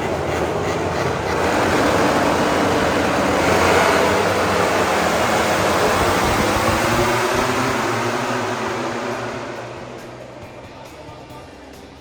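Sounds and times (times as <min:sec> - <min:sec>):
racing motorcycle engines revving: 0:00.0 - 0:12.0.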